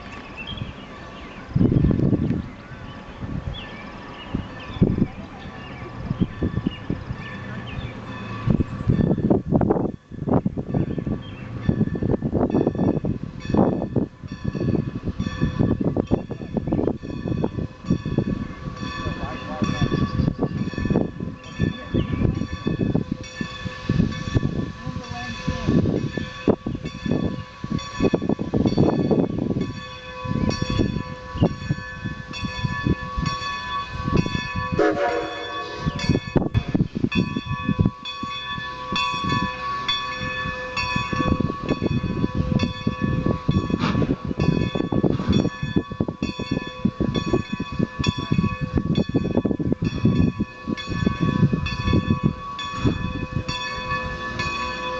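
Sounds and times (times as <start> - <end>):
steady high ringing tones: 0.4 - 54.9
train wheels clicking over rail joints: 5.8 - 54.9.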